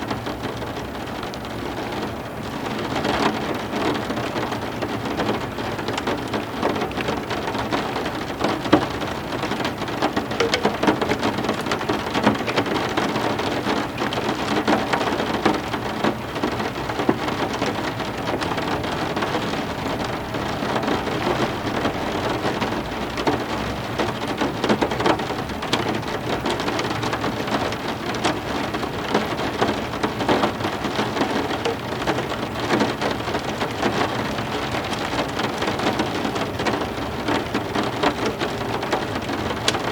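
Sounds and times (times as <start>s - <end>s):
heavy rain on hard surfaces: 0.0s - 39.9s.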